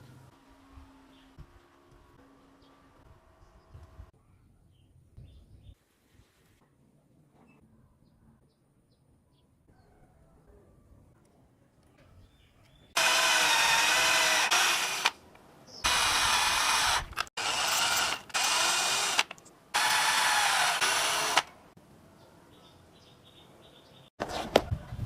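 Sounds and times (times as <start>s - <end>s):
electric power tool motor whine: 13.0s - 15.2s, 15.8s - 21.5s.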